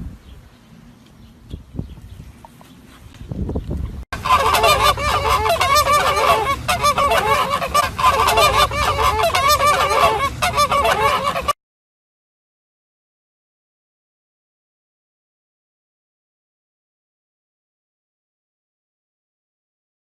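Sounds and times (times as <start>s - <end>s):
flock of birds calling: 4.2s - 11.6s.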